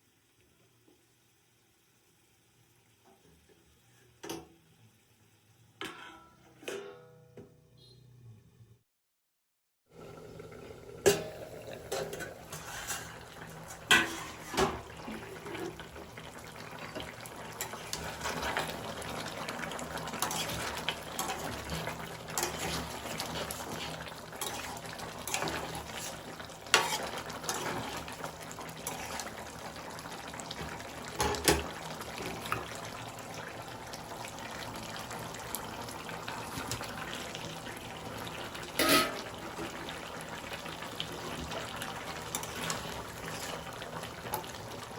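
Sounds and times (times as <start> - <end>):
curry hissing in metal pot: 10.0 - 44.9.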